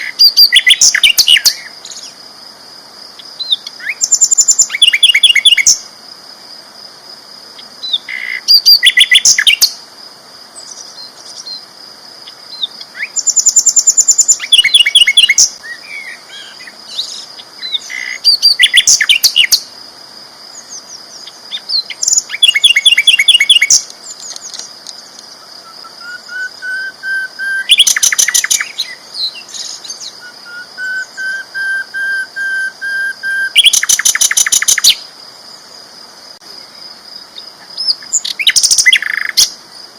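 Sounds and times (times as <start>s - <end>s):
flycatcher rattling song: 12.2s - 15.6s, 20.5s - 31.3s, 33.5s - 35.0s, 37.2s - 39.6s
bird whistled notes: 30.2s - 34.8s.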